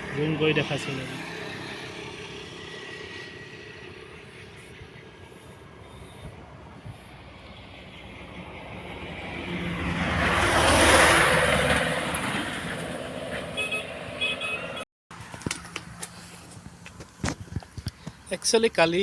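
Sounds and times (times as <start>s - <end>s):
vehicle passing by: 0.0s - 16.8s.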